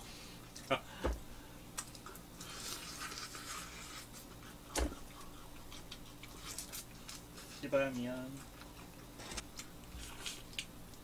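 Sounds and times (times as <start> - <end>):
person chewing toast: 1.7 - 7.6, 8.3 - 11.0.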